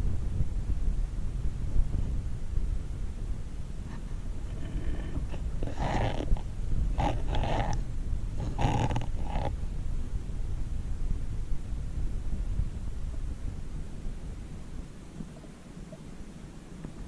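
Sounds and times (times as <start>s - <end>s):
low rumble of water: 0.0s - 17.0s
rasping breaths through a snorkel: 4.0s - 7.8s, 8.4s - 9.6s.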